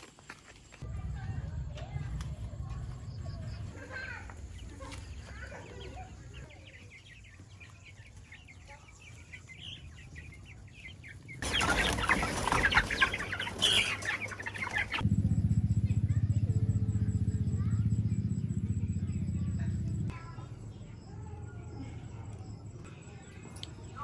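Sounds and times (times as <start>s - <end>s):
chickens clucking and cheeping: 0.0s - 24.0s
wings flapping and rustling: 3.9s - 15.0s.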